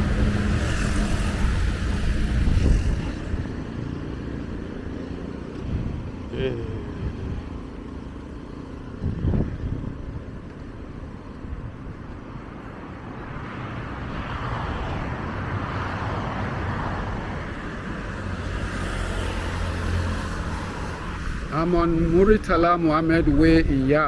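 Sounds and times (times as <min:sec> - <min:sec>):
deep engine hum: 0:00.0 - 0:13.1
low rumble of traffic engines: 0:00.0 - 0:24.0
vehicle approaching: 0:00.0 - 0:24.0.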